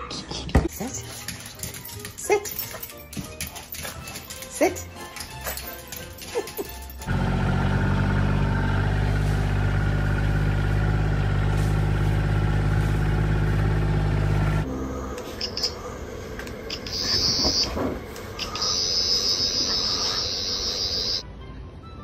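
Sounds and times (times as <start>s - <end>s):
vehicle engine idling: 7.0s - 15.2s.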